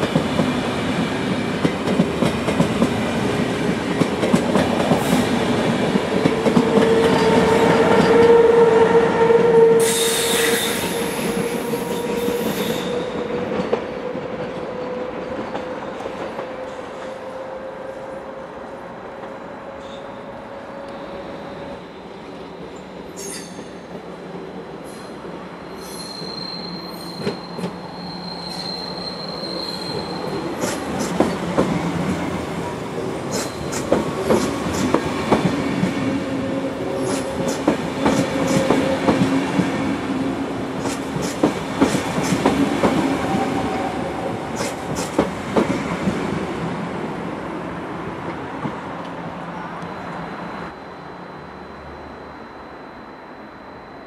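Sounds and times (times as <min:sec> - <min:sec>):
train rolling past: 0:00.0 - 0:54.0
high wheel squeal: 0:23.2 - 0:23.8, 0:24.9 - 0:30.4.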